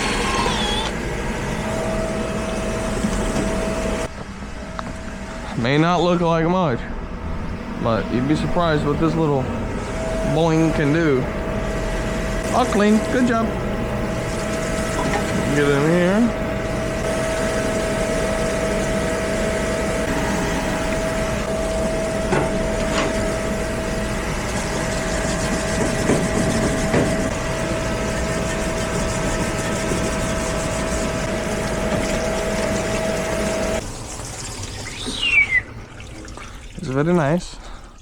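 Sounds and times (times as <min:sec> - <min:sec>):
pump motor whine: 0:00.0 - 0:37.4
parts knocking in tank: 0:25.6 - 0:27.3
liquid pouring: 0:32.0 - 0:38.0.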